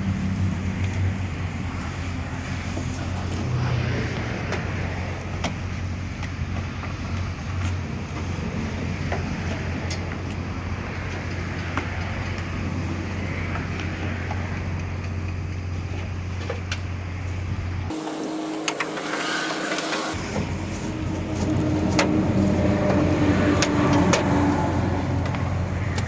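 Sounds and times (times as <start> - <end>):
motor humming: 17.0 - 26.0.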